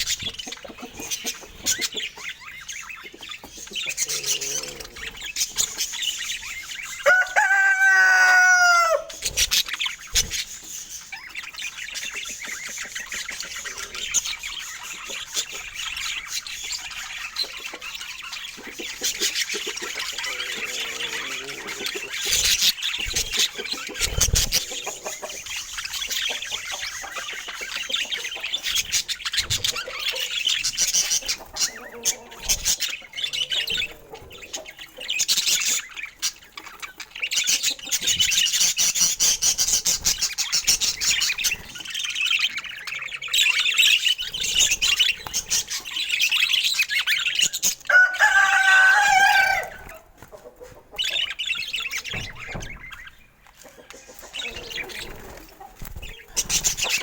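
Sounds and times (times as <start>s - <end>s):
budgerigars chattering: 0.0s - 57.0s.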